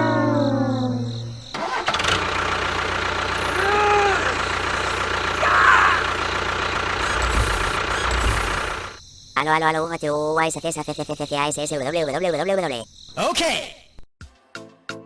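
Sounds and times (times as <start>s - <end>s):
engine running steadily: 1.6s - 9.0s.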